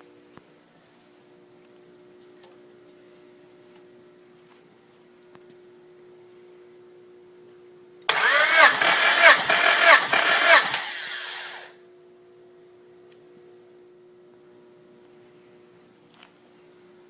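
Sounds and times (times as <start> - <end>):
starter motor cranking engine: 8.1 - 11.7.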